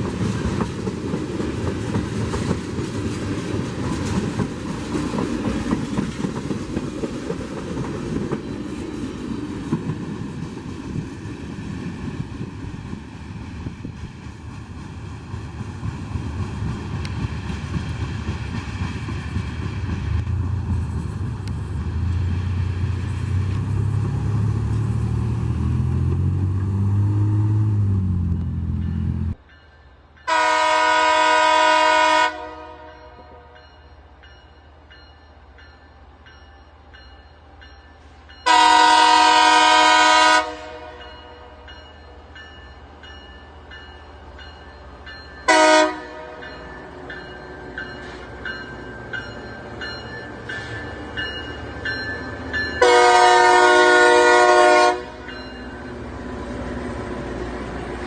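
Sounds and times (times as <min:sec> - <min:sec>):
train rumbling: 0:00.0 - 0:58.0
locomotive air horn blasts: 0:30.3 - 0:33.6, 0:38.4 - 0:41.6, 0:45.5 - 0:46.5, 0:52.8 - 0:55.3.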